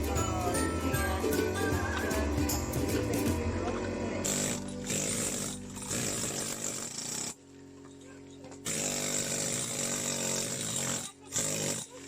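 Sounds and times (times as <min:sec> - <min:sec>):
petrol power tool engine revving: 0:02.0 - 0:07.4, 0:08.6 - 0:12.0.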